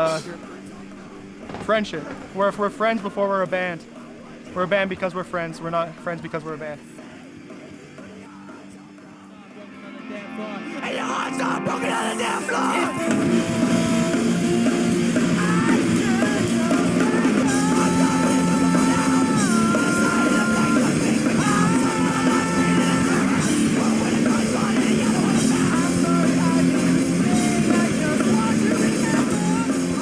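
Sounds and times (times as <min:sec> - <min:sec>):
distorted rock band: 0:00.0 - 0:30.0
yelled vocals: 0:10.6 - 0:30.0.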